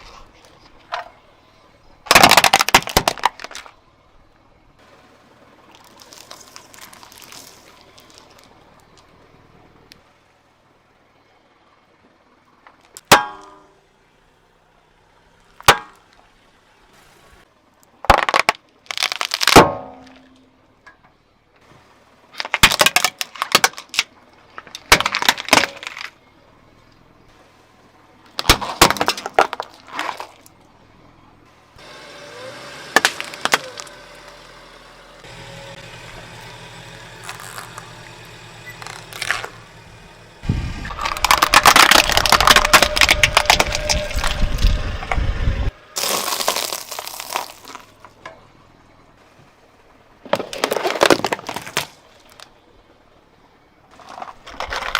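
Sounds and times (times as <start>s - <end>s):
dense crunching: 2.0s - 3.8s, 5.6s - 9.1s, 17.0s - 20.4s, 22.4s - 26.2s, 28.3s - 30.7s, 31.8s - 45.2s, 46.0s - 48.2s, 50.2s - 52.6s
objects cracking under car wheel: 2.0s - 3.8s, 5.7s - 9.1s, 17.8s - 21.0s, 22.4s - 26.2s, 28.3s - 30.6s, 32.9s - 34.6s, 35.2s - 45.3s, 46.0s - 48.4s, 50.2s - 52.6s, 53.9s - 54.9s.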